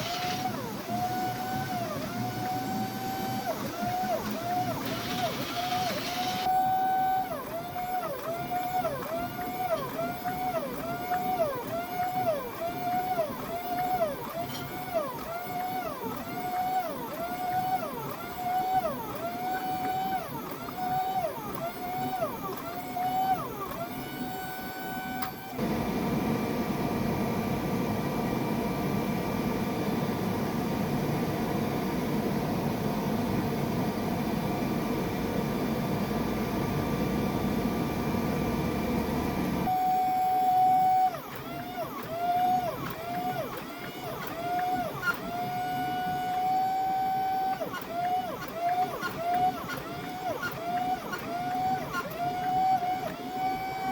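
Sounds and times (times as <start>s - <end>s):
power tool motor on steel: 0.0s - 7.0s.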